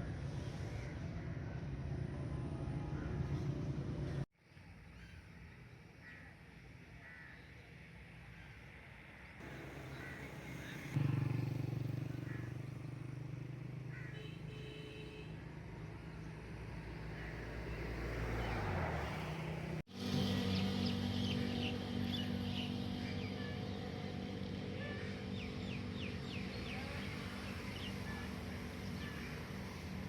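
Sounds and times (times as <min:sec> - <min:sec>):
vehicle engine running: 0:09.4 - 0:14.2, 0:19.5 - 0:30.0.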